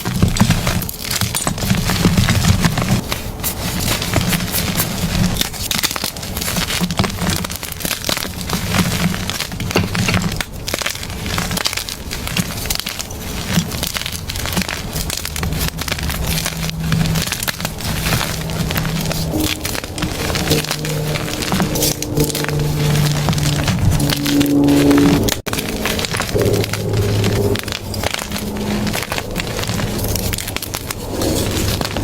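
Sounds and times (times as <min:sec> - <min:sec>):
chalk being crushed: 0:00.0 - 0:32.0.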